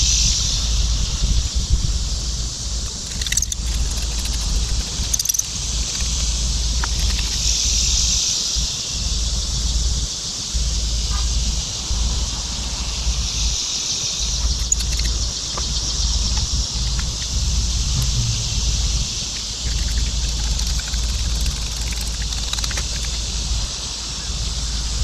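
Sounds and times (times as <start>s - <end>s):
high-pitched hiss: 0.0s - 25.0s
wind gusts on microphone: 0.0s - 25.0s
faint clicks: 14.4s - 17.4s, 19.3s - 23.4s.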